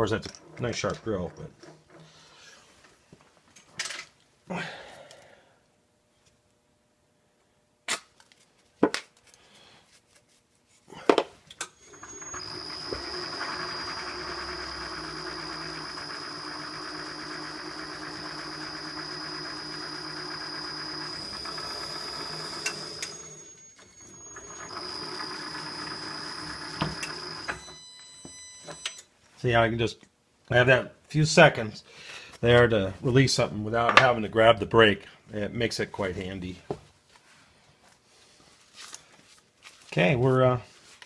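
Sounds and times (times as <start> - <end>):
milling machine whining: 11.8 - 28.9.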